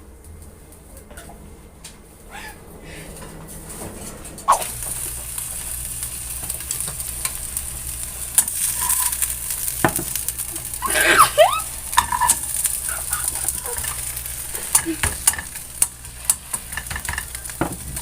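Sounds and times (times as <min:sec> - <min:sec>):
brief high squeal: 0:04.5 - 0:04.7
food sizzling in a frying pan: 0:04.5 - 0:18.0
utensil scraping a pan: 0:08.4 - 0:11.2, 0:11.9 - 0:18.0.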